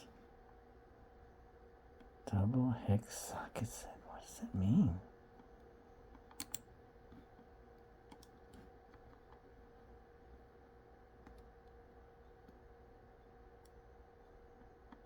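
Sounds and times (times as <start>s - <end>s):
faint steady hum: 0.0s - 15.0s
computer keyboard typing clicks: 6.2s - 6.7s, 8.1s - 9.4s, 11.2s - 11.5s.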